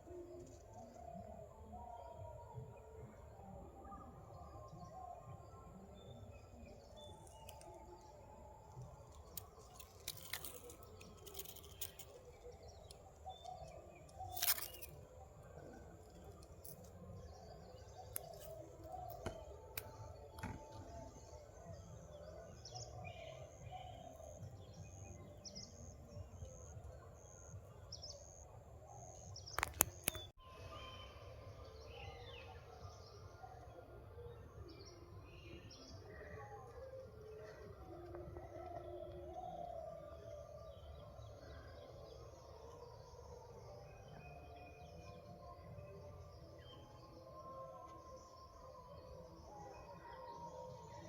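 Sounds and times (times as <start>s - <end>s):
birds chirping faintly: 0.1s - 30.4s
sharp clicks: 29.5s - 30.3s.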